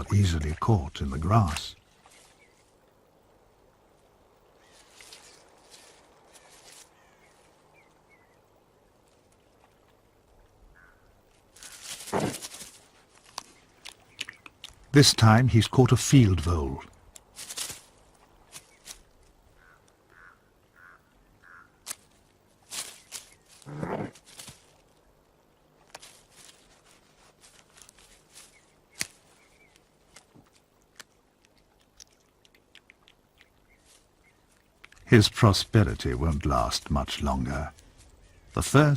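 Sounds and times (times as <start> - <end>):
small clicks and rustles in grass: 0.0 - 15.5, 16.1 - 38.9
animal crashing through grass: 11.6 - 12.8.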